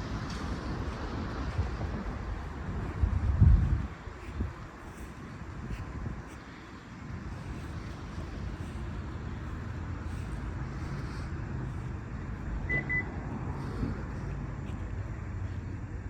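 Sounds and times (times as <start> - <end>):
car low rumble: 0.0 - 16.0
high electronic beeps: 12.7 - 13.1.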